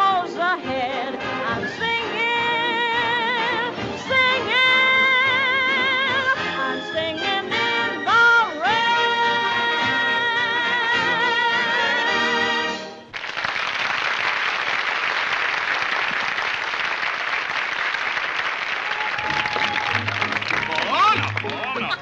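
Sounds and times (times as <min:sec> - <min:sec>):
orchestra playing: 0:00.0 - 0:13.1, 0:19.4 - 0:22.0
applause: 0:13.1 - 0:22.0.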